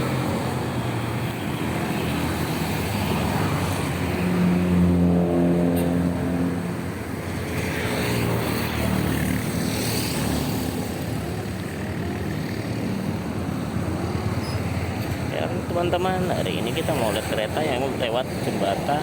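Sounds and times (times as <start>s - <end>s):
vehicle engine passing by: 1.7s - 11.1s.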